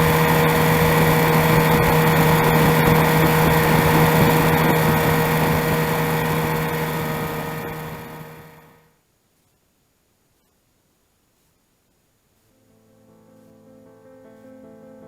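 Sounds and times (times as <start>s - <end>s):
boat motor droning: 0.0s - 8.8s.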